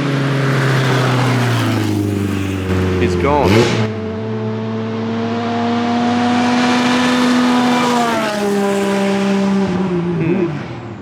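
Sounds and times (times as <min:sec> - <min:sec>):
tyres on gravel: 0:00.0 - 0:04.0
race car engine passing: 0:00.0 - 0:11.0.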